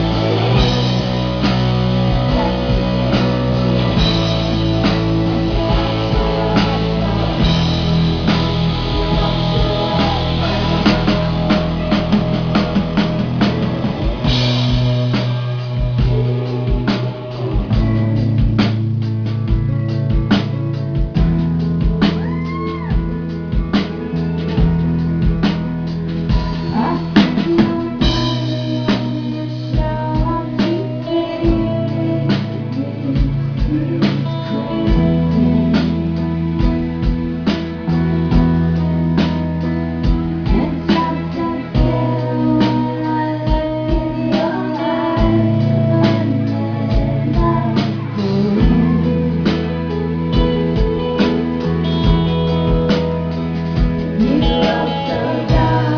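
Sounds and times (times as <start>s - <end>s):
person singing: 0.0s - 24.8s, 26.4s - 55.9s
bass notes: 0.0s - 55.9s
guitar: 0.0s - 55.9s
drum beat: 0.3s - 18.9s.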